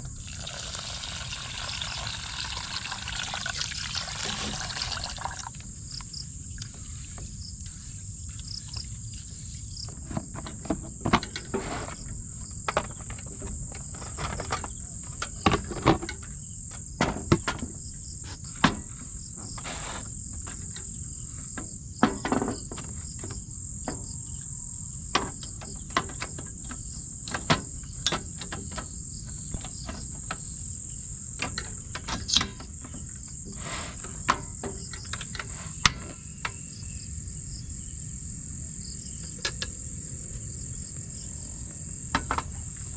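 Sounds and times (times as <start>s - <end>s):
crickets chirring: 0.0s - 42.9s
sharp knocks and clicks: 25.1s - 30.5s, 31.4s - 33.5s, 34.1s - 36.7s, 39.2s - 39.8s, 42.1s - 42.6s.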